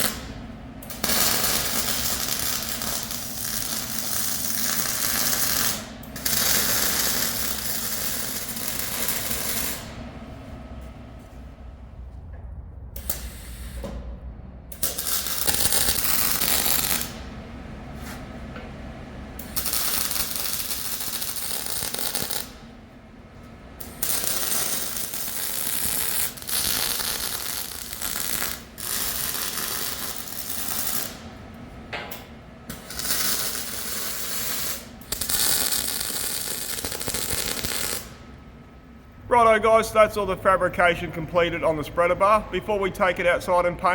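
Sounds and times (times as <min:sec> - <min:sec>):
welding crackling hiss: 0:00.0 - 0:09.9, 0:14.7 - 0:17.3, 0:19.4 - 0:22.7, 0:23.8 - 0:31.4, 0:32.7 - 0:38.3.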